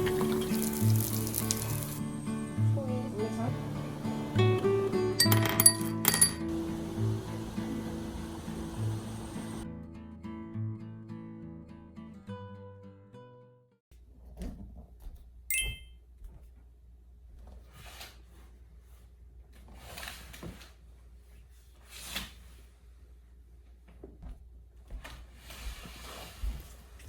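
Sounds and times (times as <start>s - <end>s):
guitar music: 0.0s - 13.7s
short high clink: 15.5s - 15.9s.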